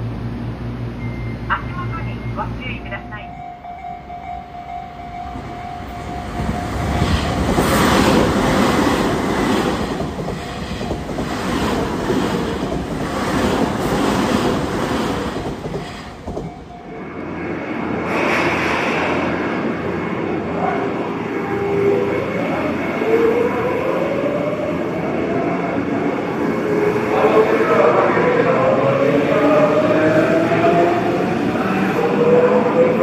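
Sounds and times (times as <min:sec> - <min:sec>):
level-crossing warning bell: 0:01.0 - 0:07.6, 0:16.3 - 0:17.7
train wheels clattering over joints: 0:06.4 - 0:16.7.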